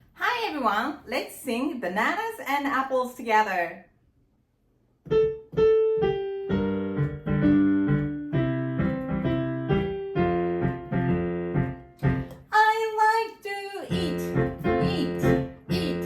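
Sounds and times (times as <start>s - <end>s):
piano chords with bass line: 5.0s - 12.4s, 13.9s - 16.0s
single piano notes: 5.1s - 12.4s.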